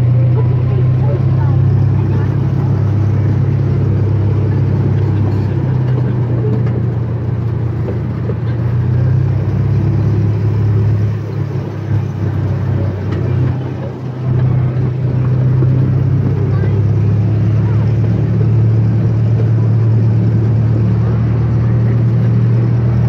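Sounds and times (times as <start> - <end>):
train engine drone: 0.0 - 23.0.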